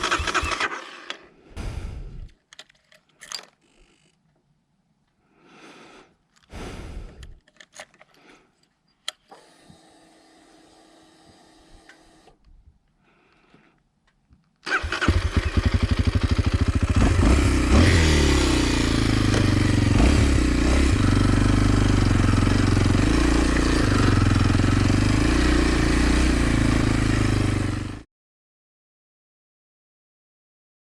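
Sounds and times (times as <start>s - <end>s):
motorcycle engine starting and idling: 0.0s - 1.3s, 14.6s - 28.0s.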